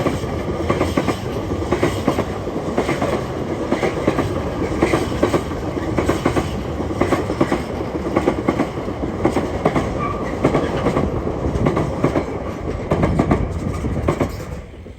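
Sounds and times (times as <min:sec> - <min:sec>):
train wheels clattering on rails: 0:00.0 - 0:14.9.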